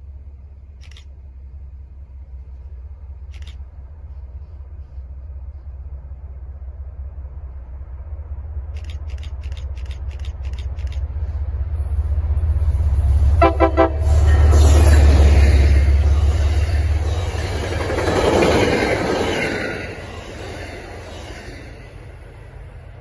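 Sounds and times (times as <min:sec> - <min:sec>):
train passing close by: 0:00.0 - 0:23.0
train horn blast: 0:13.4 - 0:14.8.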